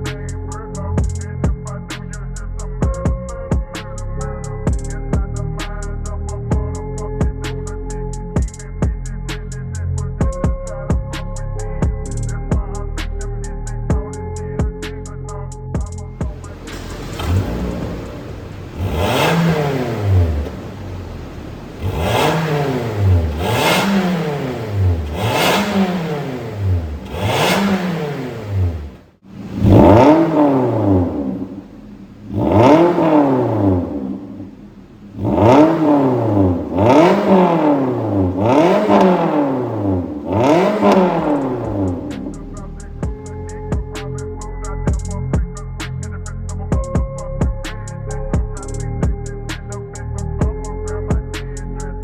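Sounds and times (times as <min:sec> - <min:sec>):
car engine revving: 0:16.0 - 0:44.2.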